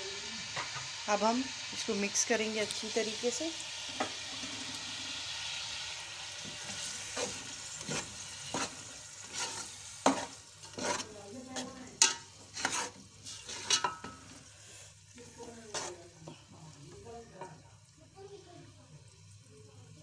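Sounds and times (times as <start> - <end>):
food sizzling in metal pot: 0.0 - 20.0
spoon scraping a pot: 6.4 - 14.4, 15.4 - 16.5.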